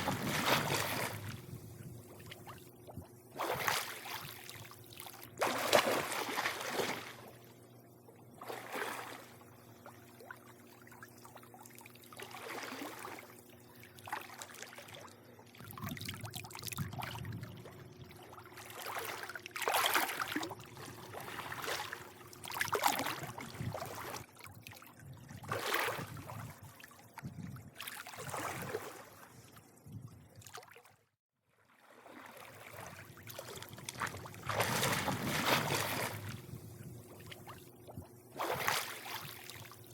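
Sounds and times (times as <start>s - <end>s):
small water splashes: 0.0s - 7.4s, 8.4s - 29.6s, 30.4s - 31.0s, 31.7s - 39.9s
faint steady hum: 0.0s - 30.6s, 31.8s - 39.9s
pool water lapping and sloshing: 0.0s - 39.9s.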